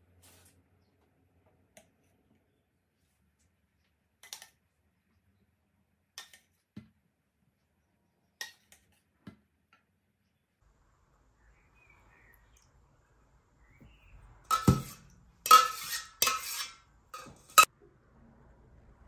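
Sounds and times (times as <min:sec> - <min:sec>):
utensils clinking against dishes: 0:14.5 - 0:17.7.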